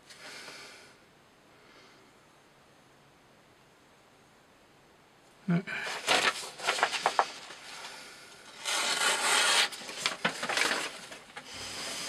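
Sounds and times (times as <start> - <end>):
knife cutting through rope: 8.5 - 10.9.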